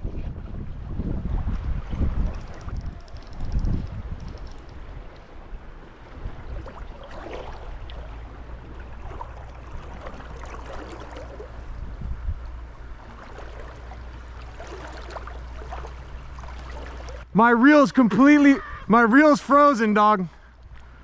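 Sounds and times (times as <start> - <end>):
wind rumble on microphone: 0.0 - 17.3
river water rushing: 5.9 - 11.7, 12.7 - 18.6.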